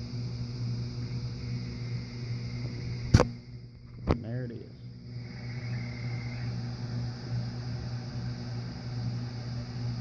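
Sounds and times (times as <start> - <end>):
coarse radio buzz: 0.0 - 10.0.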